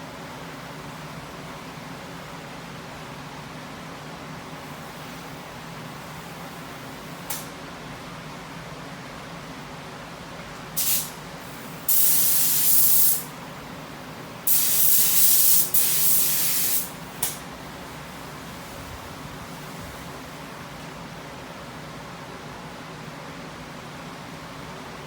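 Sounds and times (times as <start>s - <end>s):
paint spray gun hissing: 10.8s - 11.2s, 11.8s - 13.3s, 14.5s - 17.0s.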